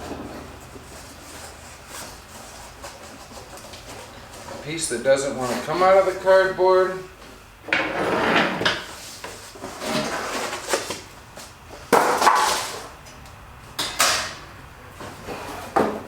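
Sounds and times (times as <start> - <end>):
cardboard scraping and rustling: 0.0 - 6.4, 8.0 - 11.1.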